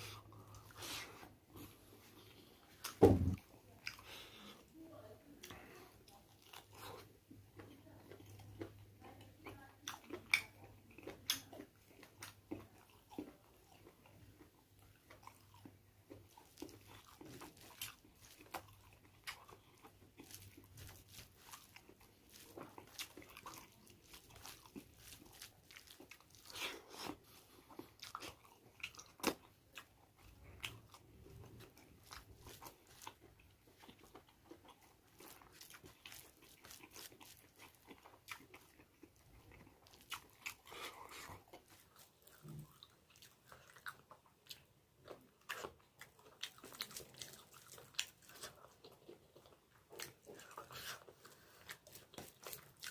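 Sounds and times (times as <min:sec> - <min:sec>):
chewing and biting meat: 0:05.4 - 0:52.9.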